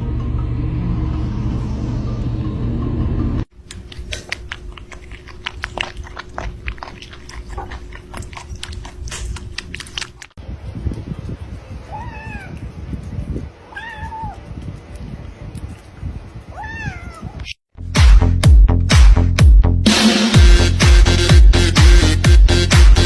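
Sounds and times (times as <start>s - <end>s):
cat meowing: 11.9s - 12.6s, 13.7s - 14.5s, 16.5s - 17.4s.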